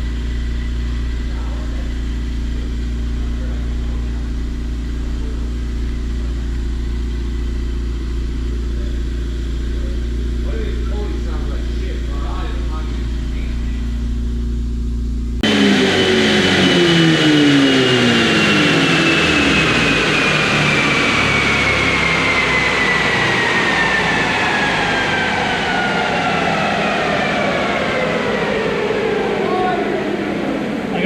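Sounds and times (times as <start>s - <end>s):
car engine revs falling: 15.3s - 31.0s
whine of spinning rollers: 15.4s - 31.0s.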